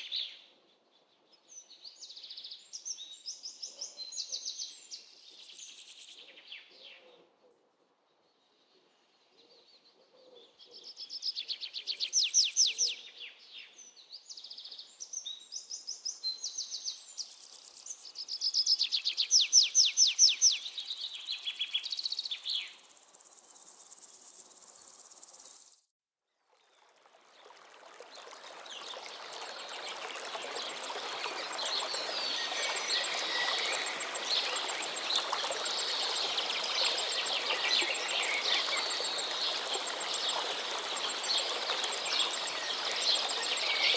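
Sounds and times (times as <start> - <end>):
chorus of birds: 11.7 - 25.8, 28.6 - 43.9
insects buzzing: 19.1 - 25.8, 31.9 - 43.9
songbirds trilling: 30.8 - 43.9.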